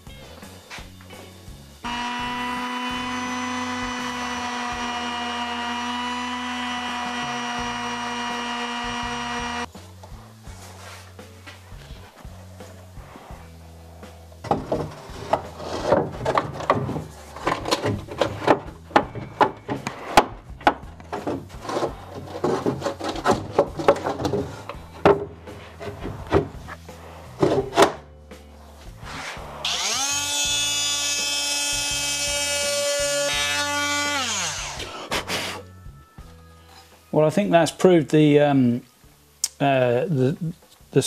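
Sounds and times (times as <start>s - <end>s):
spindle motor whine: 1.8s - 9.7s, 29.6s - 31.8s
wooden panels knocking: 14.4s - 26.6s.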